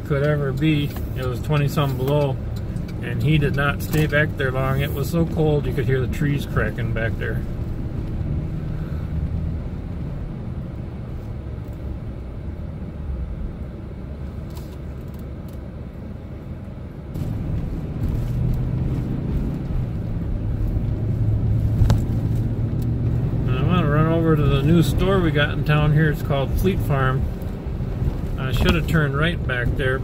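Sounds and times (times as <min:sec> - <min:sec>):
engine and road rumble: 0:00.0 - 0:30.0.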